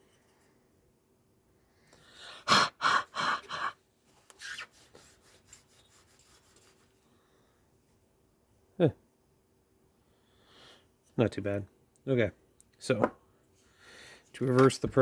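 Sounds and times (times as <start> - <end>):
faint rubbing on glass: 4.4 - 7.0.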